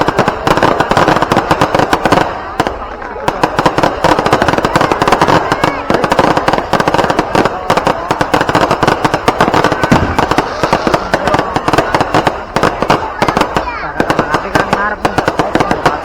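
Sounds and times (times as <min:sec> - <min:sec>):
crowd voices: 0:00.0 - 0:16.0
firecrackers and fireworks bangs: 0:00.0 - 0:16.0.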